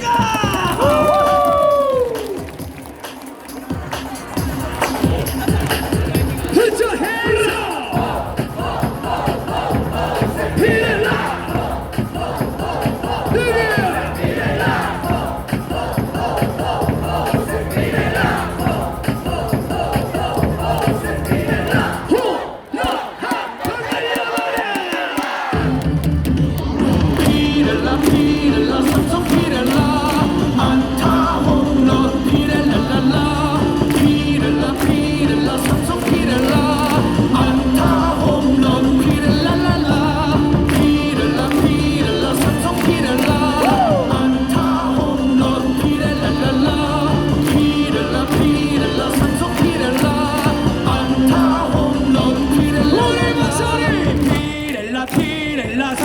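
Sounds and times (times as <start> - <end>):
cheer song over loudspeakers: 0.0 - 56.0
crowd clapping to the beat: 0.0 - 56.0
crowd singing along: 0.0 - 56.0.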